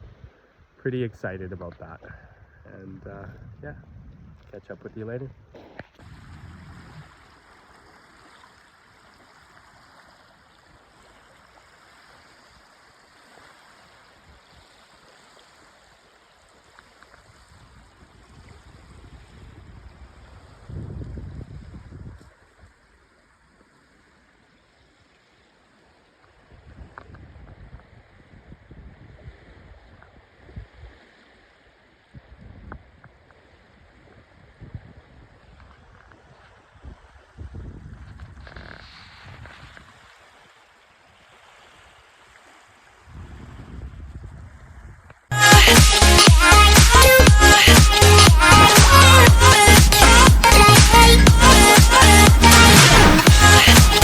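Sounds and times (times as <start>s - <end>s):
wind buffeting microphone: 1.3s - 7.4s, 17.4s - 22.3s, 33.9s - 40.0s, 43.1s - 45.1s
creek water rushing: 6.0s - 20.8s, 39.8s - 43.2s, 45.3s - 54.0s.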